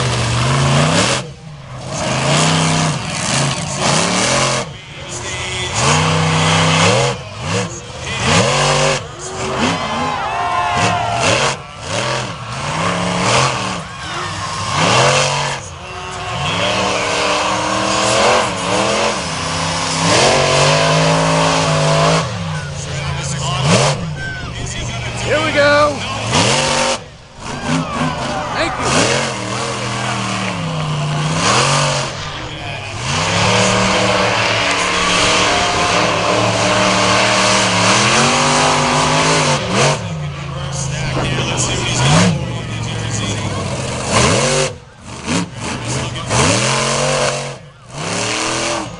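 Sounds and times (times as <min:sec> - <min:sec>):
truck engine revving: 0:00.0 - 0:48.9.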